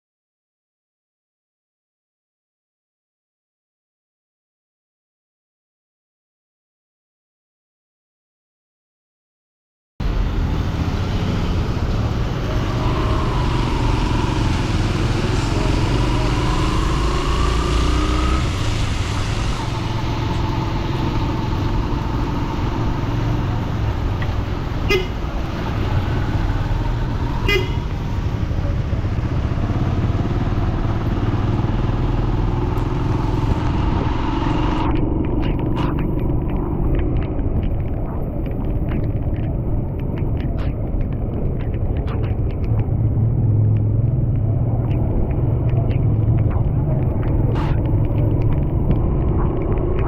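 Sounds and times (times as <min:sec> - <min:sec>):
traffic on wet road: 0:10.0 - 0:50.0
car horn toots: 0:24.8 - 0:25.3, 0:27.4 - 0:28.0.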